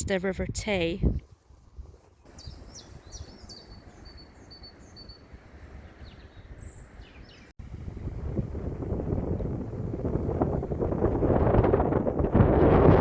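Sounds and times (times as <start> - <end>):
wind rumbling on microphone: 0.0 - 13.0
songbird chirping: 2.2 - 7.6.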